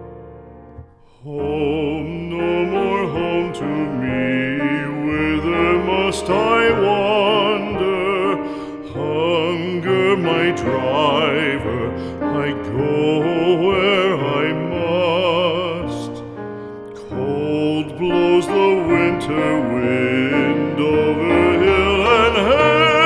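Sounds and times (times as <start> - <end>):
piano accompaniment: 0.0 - 23.0
classical solo singing with vibrato: 1.0 - 23.0.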